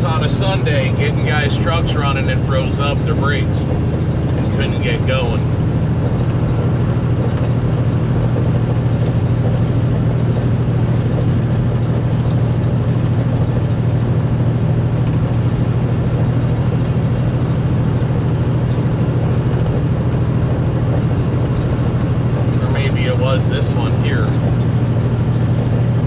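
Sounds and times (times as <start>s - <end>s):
road noise: 0.0s - 26.0s
truck diesel engine droning: 0.0s - 26.0s.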